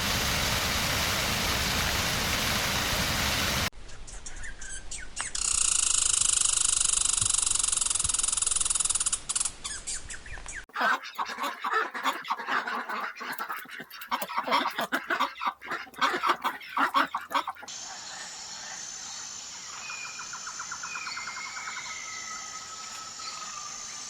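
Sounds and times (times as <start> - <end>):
flock of birds calling: 10.7 - 18.8.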